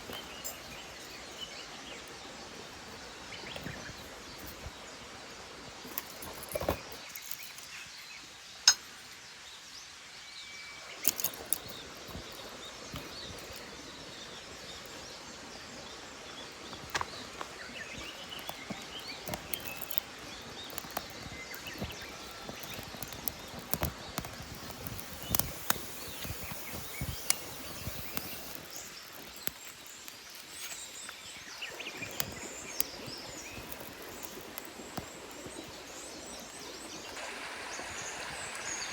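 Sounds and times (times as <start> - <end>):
forest stream rushing: 13.4 - 38.9
sharp clicks and knocks: 20.6 - 30.0.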